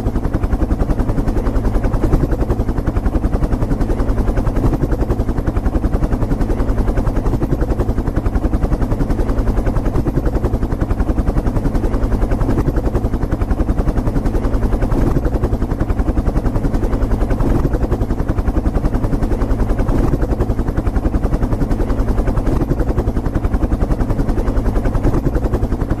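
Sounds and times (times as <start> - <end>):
helicopter rotor blades chopping: 0.0 - 26.0.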